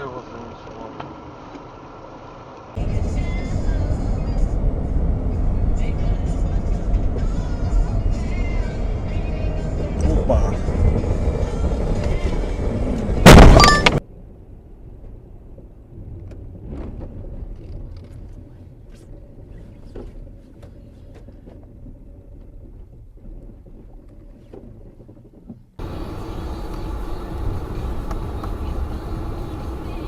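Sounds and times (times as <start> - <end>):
muffled low vehicle rumble: 0.0 - 30.0
car crash impact: 13.2 - 14.0.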